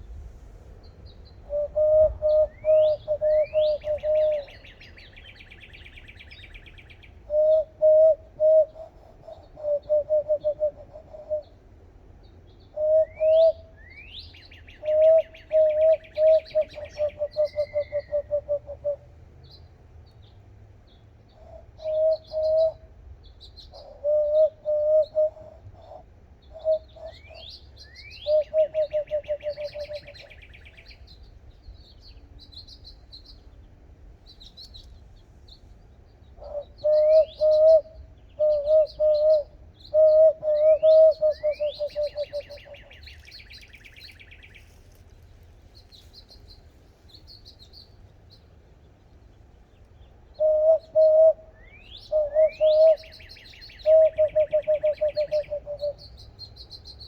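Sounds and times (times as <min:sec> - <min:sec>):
high chirps and rising calls: 0:36.6 - 0:44.8.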